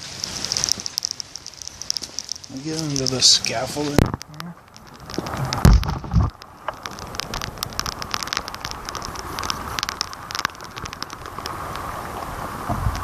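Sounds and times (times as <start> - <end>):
rain pattering: 0.0 - 13.0
steady hiss: 0.0 - 13.0
drops striking microphone: 1.9 - 8.7
low thumps: 1.9 - 11.4.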